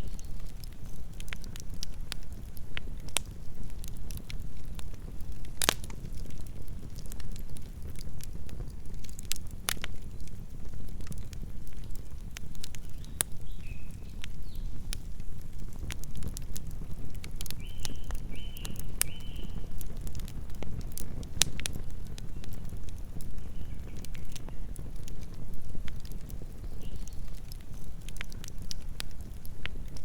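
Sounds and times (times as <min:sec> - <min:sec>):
campfire crackling and popping: 0:00.0 - 0:30.0
low rumble of fire: 0:00.0 - 0:30.0.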